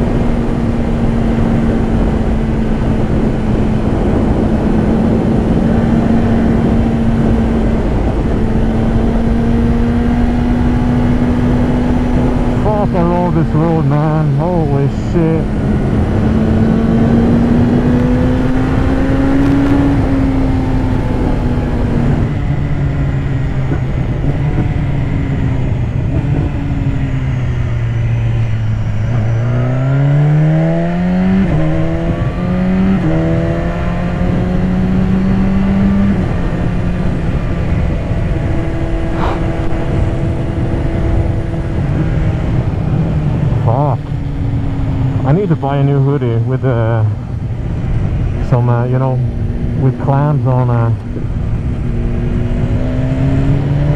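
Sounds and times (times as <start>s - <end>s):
motorcycle engine revving: 0.0s - 53.9s
wind noise: 0.0s - 53.9s.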